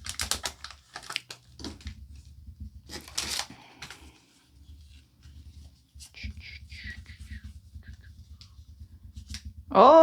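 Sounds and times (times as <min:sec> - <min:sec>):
foil wrapper tearing and crinkling: 0:00.0 - 0:01.8, 0:02.9 - 0:03.6.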